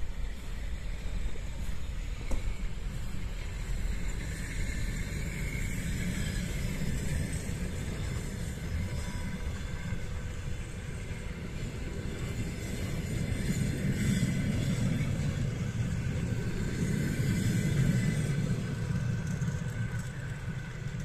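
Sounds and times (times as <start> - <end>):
train coaches rumbling on rails: 0.0 - 21.0.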